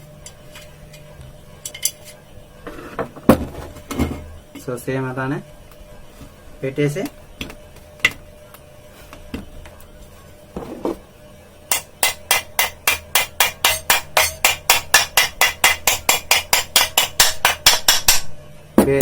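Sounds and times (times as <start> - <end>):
hammer tapping metal: 11.7 - 19.0.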